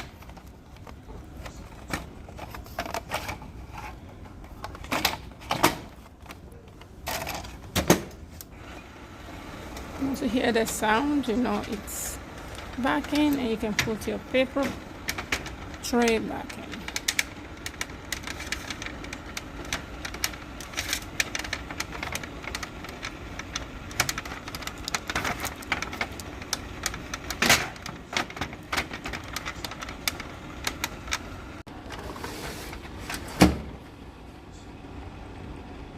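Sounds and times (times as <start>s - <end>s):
plastic parts clicking and knocking: 12.5s - 31.6s.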